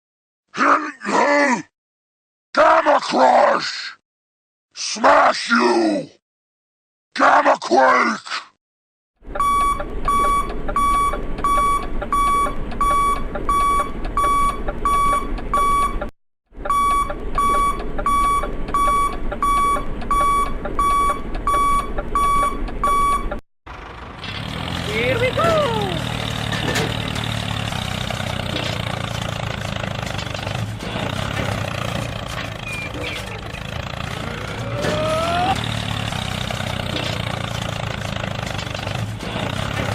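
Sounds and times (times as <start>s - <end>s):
rising squeal: 31.7s - 35.7s.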